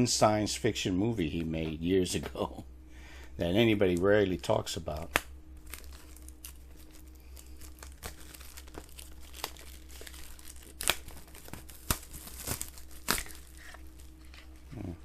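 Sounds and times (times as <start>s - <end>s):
plastic shrink-wrap crinkling and tearing: 5.0s - 14.9s.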